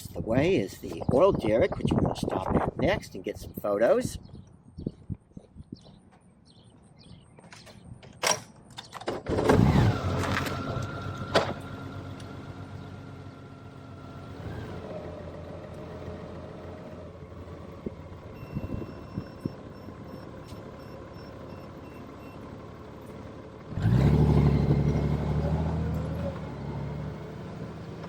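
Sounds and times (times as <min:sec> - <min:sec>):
motorcycle engine starting and idling: 0:07.5 - 0:28.0.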